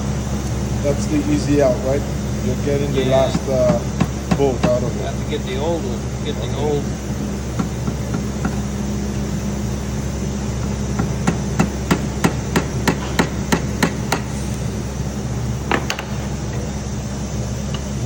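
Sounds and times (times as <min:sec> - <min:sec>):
hammer striking metal: 0:11.0 - 0:14.3.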